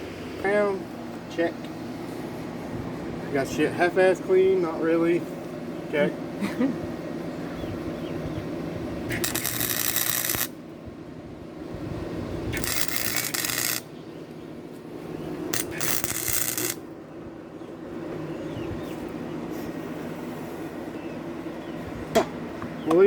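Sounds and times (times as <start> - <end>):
welder arc crackling: 9.1 - 10.6, 12.5 - 13.9, 15.5 - 16.8.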